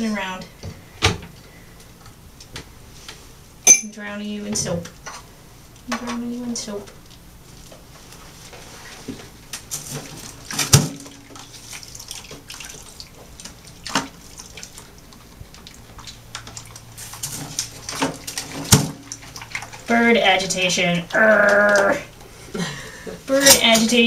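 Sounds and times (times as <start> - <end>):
water splashing in a sink: 8.8 - 22.2.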